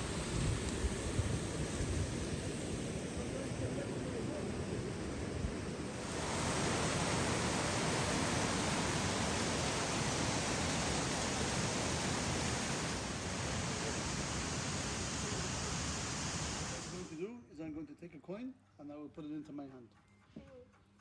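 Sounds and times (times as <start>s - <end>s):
waterfall rushing: 5.9s - 17.1s.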